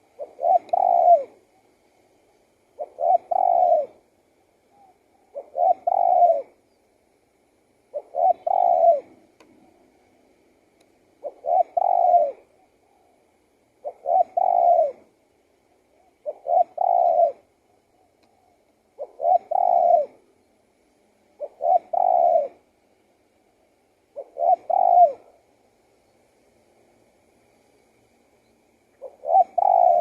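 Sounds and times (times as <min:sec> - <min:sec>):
dove cooing: 0:00.0 - 0:01.8, 0:02.7 - 0:04.1, 0:04.7 - 0:06.6, 0:07.9 - 0:10.0, 0:11.1 - 0:20.3, 0:21.3 - 0:22.7, 0:24.1 - 0:25.5, 0:28.9 - 0:30.0.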